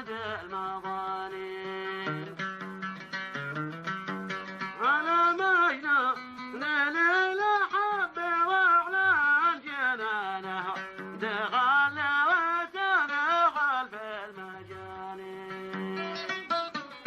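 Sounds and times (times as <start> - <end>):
man singing folk song: 0.0 - 17.0.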